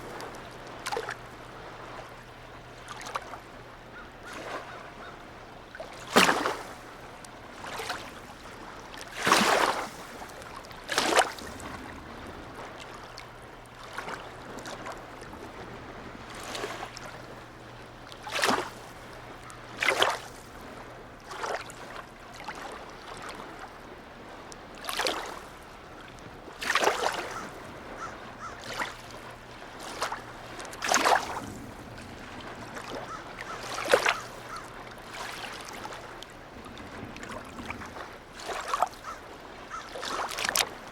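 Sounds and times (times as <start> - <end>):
waves lapping against harbour edge: 0.0 - 40.9.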